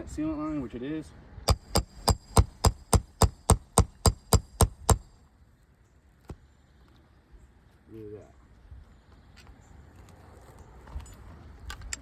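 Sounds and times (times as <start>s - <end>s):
hammer striking metal nail puller: 1.5s - 5.2s.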